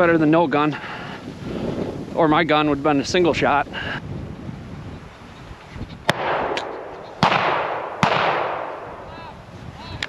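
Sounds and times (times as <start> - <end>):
shotgun shots with echo: 6.1 - 9.0.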